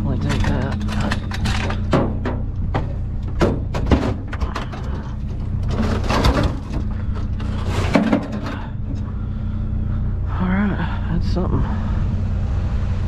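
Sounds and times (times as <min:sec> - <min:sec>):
objects knocking and rattling: 0:00.0 - 0:09.0
low engine hum: 0:00.0 - 0:13.0.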